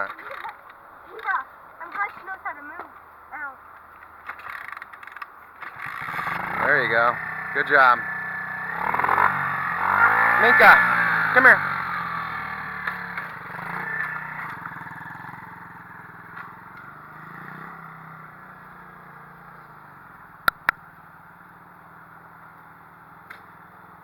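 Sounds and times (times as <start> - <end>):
pit bike engine running: 5.7 - 21.7
sharp clicks: 20.4 - 20.8.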